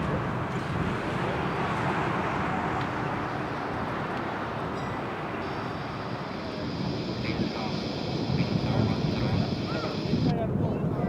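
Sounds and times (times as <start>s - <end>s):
jet airliner engine rush: 5.0s - 10.3s.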